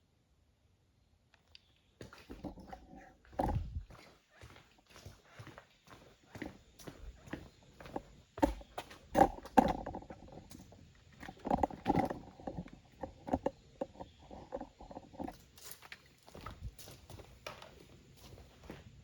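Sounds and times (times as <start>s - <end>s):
irregular knocks and scuffs: 2.0s - 19.0s.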